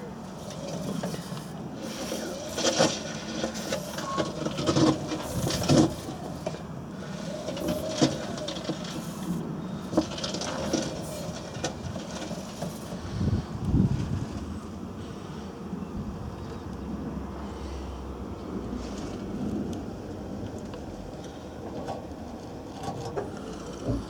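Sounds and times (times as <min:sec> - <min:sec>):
washing machine rumbling: 0:00.0 - 0:15.1.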